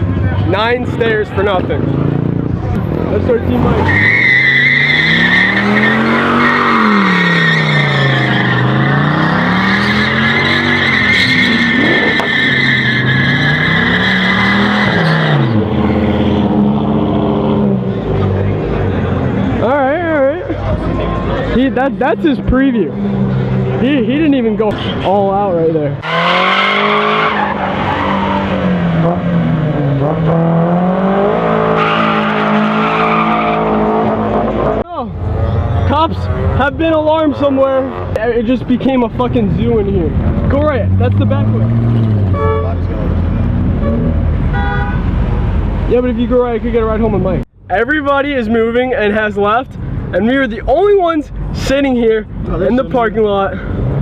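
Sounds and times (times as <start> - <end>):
car engine revving: 0.0 - 19.7, 26.0 - 47.5
tyres squealing: 3.3 - 15.6.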